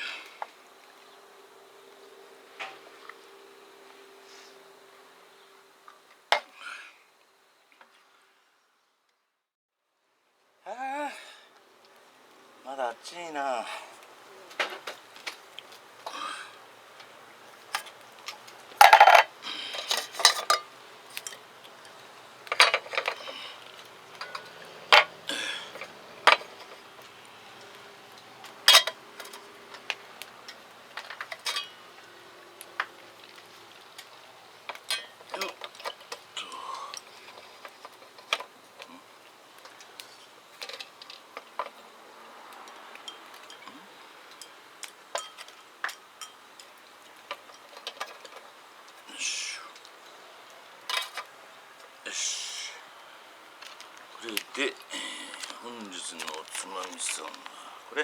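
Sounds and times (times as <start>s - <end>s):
tableware clinking and rattling: 18.8s - 21.5s, 22.5s - 23.4s, 24.2s - 26.8s, 28.6s - 29.5s, 30.5s - 31.8s, 34.7s - 36.2s, 43.0s - 43.7s, 44.3s - 46.7s.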